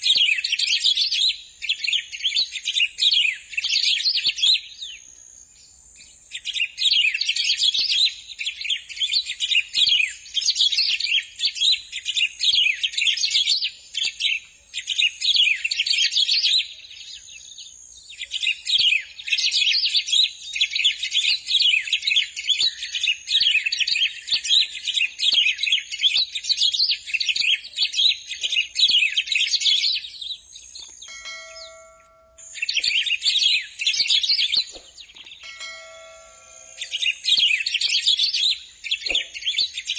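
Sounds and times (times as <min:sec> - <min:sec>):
songbird twittering warble: 0:00.0 - 0:39.9
bell-like whistled notes: 0:31.0 - 0:39.1.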